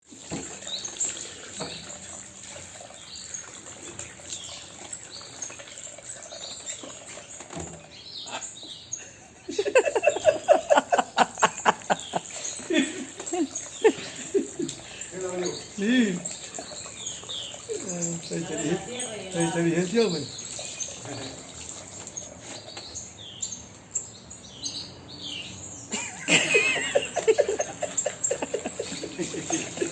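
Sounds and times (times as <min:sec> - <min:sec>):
parrot chirping and chattering: 0:03.2 - 0:24.0, 0:26.8 - 0:29.9.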